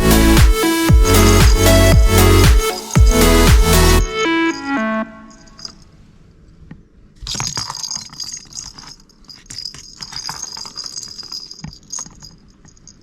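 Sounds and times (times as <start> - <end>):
small bell jingling: 5.3 - 5.9, 7.3 - 13.0.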